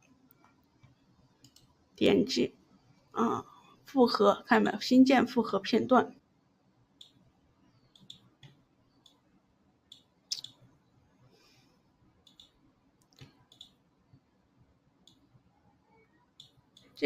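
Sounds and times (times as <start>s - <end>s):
computer mouse clicking: 0.3s - 1.7s, 7.9s - 9.2s, 12.2s - 13.8s, 15.0s - 15.2s, 16.4s - 17.0s.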